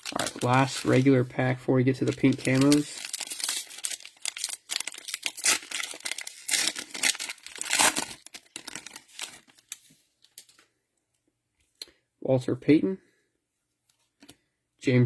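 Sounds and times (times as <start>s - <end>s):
cellophane wrapper tearing and crinkling: 0.0s - 10.6s.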